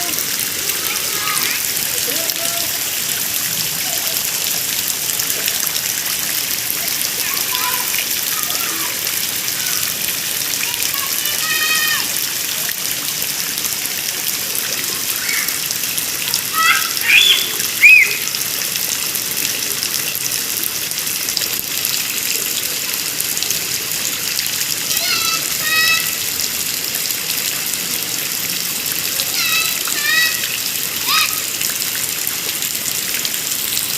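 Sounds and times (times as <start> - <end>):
children calling out: 0.0 - 3.0, 3.6 - 4.6, 6.7 - 12.5, 14.3 - 18.4, 24.8 - 26.3, 29.0 - 31.7
steady rain falling: 0.0 - 33.9.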